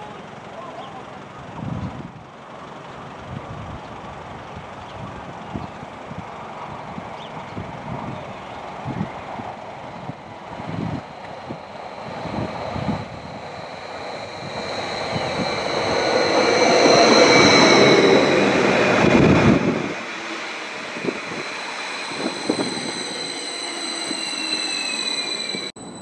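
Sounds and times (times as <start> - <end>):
train passing at speed: 6.1 - 26.0
high steady whine: 8.8 - 26.0.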